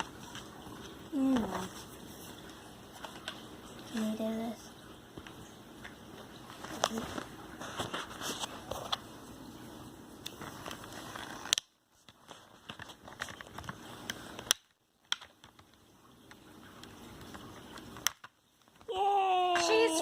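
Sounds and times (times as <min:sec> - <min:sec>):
plastic packaging crackling: 0:10.2 - 0:15.8.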